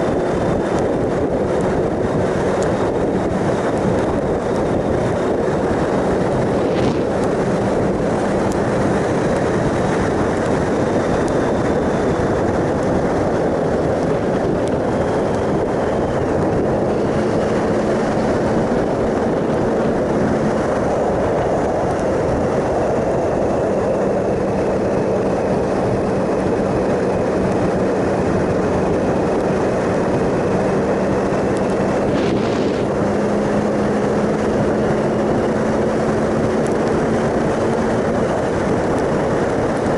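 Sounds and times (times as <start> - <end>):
motorcycle engine cruising: 0.0 - 39.9
road noise: 0.0 - 39.9
wind rush: 0.0 - 39.9.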